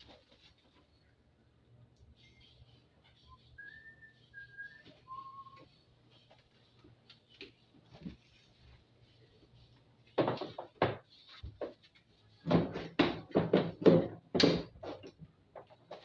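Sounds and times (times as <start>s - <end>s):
knocks and clatter of parts: 10.2s - 11.8s, 12.4s - 16.0s.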